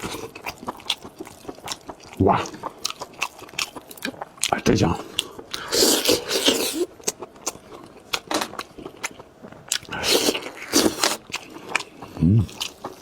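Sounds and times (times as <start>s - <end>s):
chewing with wet mouth clicks: 0.0s - 13.0s
biting and tearing meat: 5.2s - 13.0s.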